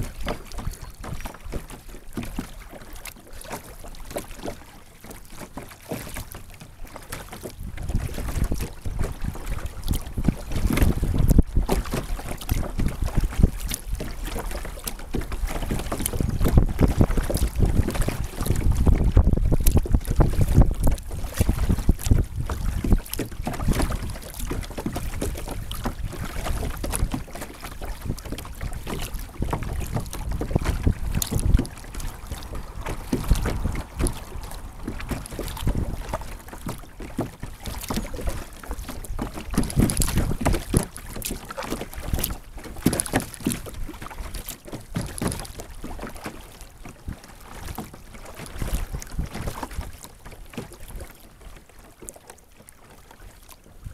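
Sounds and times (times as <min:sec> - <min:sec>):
water splashing against kayak: 0:00.0 - 0:53.9
wind buffeting microphone: 0:07.5 - 0:46.2.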